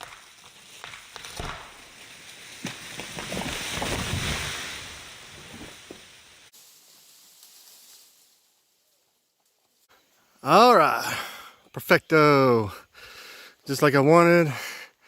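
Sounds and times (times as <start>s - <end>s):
branches cracking and snapping: 0.0s - 8.5s
tree falling through air: 0.6s - 7.9s.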